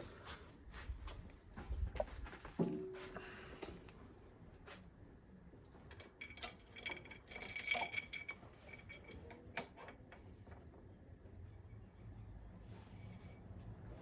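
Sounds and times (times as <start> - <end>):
metal parts clicking and clinking: 5.7 - 10.2.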